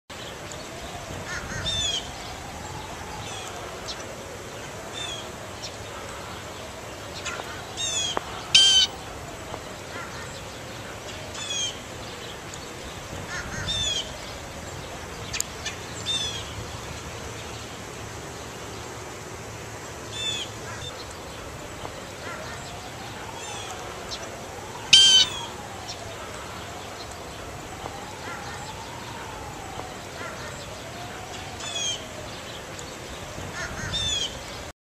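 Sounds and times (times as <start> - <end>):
bird calling in sharp notes: 7.2 - 9.0, 24.9 - 25.6.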